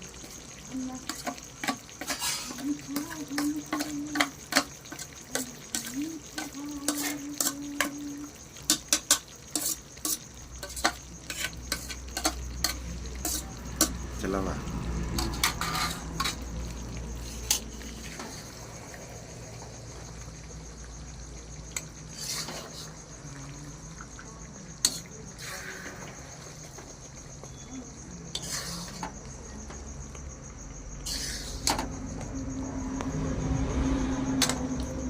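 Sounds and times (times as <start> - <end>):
metal utensil scraping pan: 1.0 - 8.0, 8.6 - 14.0, 15.1 - 16.4, 22.1 - 22.9, 28.3 - 29.1.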